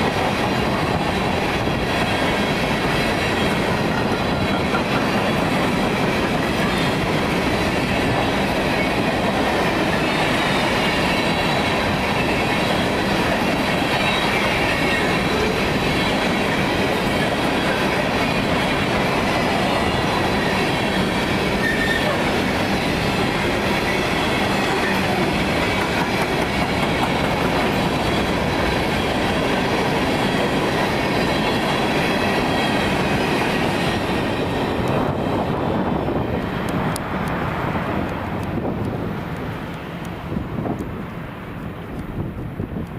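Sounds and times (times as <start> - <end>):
train wheels rumbling on rails: 0.0 - 42.9
wheel squeal: 21.5 - 22.2.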